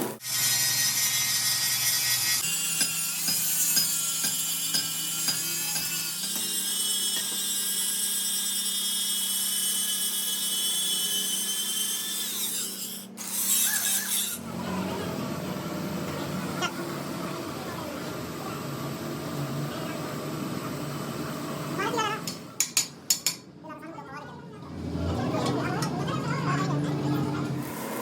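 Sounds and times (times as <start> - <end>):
workshop machinery whining: 0.0 - 23.6, 24.3 - 28.0.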